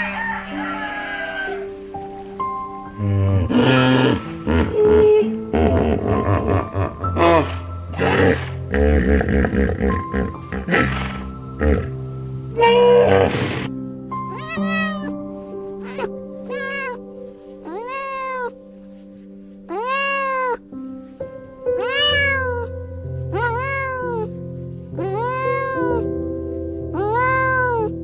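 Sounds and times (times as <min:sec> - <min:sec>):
soft background music: 0:00.0 - 0:28.0
cat meowing: 0:14.3 - 0:15.2, 0:15.8 - 0:17.0, 0:17.6 - 0:18.6, 0:19.7 - 0:20.7, 0:21.8 - 0:22.7, 0:23.3 - 0:24.4, 0:25.0 - 0:26.1, 0:26.9 - 0:28.0.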